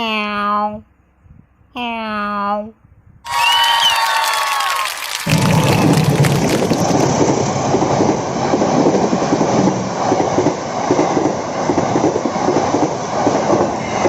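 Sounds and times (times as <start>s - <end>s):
train running along rails: 5.3s - 14.0s.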